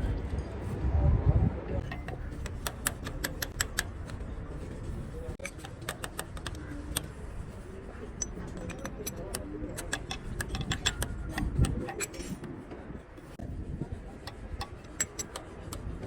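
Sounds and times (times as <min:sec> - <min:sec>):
metallic clicks and clinks of tools: 0:01.8 - 0:04.3, 0:05.3 - 0:12.6, 0:14.2 - 0:15.9.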